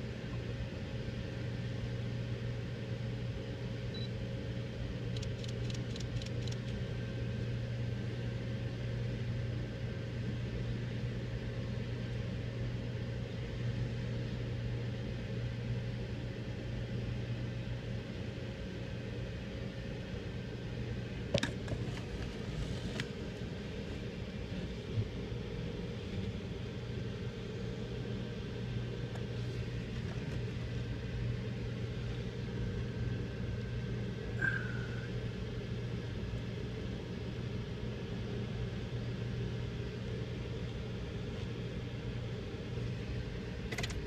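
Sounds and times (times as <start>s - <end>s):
faint ticks: 5.1s - 6.8s.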